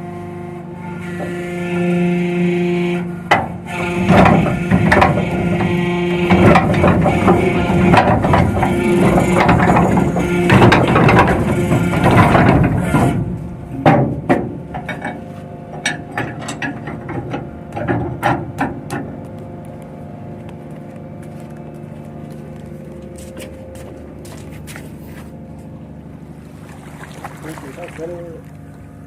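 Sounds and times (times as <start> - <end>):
low machinery hum: 0.0 - 29.0
metal clanks: 3.2 - 19.2.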